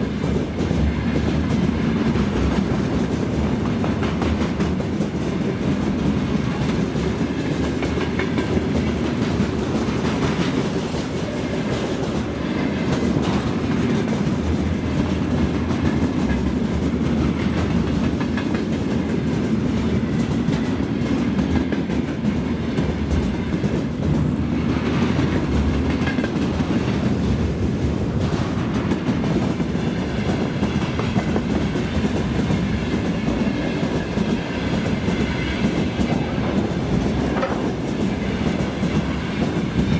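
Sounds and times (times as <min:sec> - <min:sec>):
freight train rumbling past: 0:00.0 - 0:39.9
wheels clattering over rail joints: 0:21.5 - 0:39.9.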